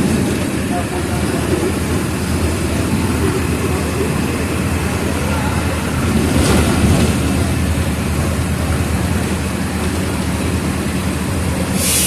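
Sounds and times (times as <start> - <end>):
bus diesel engine droning: 0.0 - 12.0
road rumble: 0.0 - 12.0
short hiss: 11.8 - 12.0.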